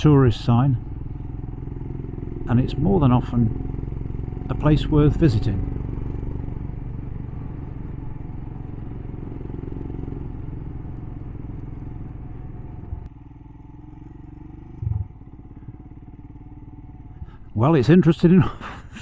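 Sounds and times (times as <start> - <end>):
motorcycle engine running: 0.0 - 19.0
low thump: 14.8 - 15.2.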